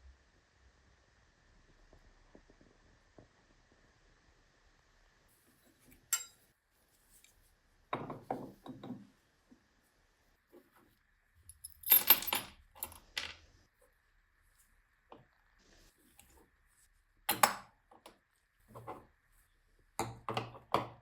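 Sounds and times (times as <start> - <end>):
metal tools clinking and knocking: 6.1 - 6.4, 11.5 - 13.4.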